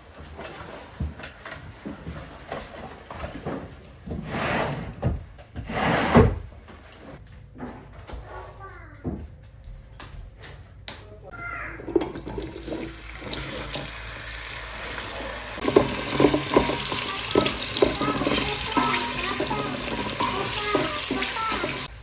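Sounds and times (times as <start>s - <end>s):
running water hissing: 12.0s - 22.0s.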